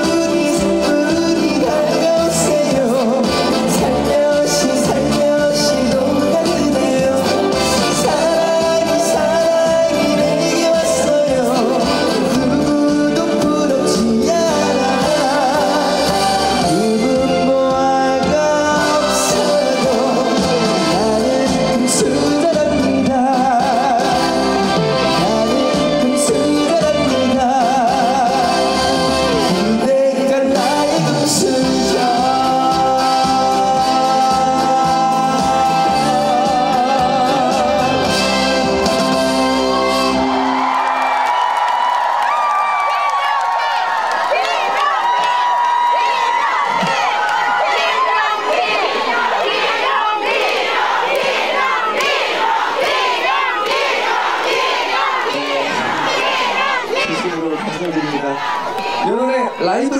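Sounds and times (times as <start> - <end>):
man singing into a microphone: 0.0 - 39.3.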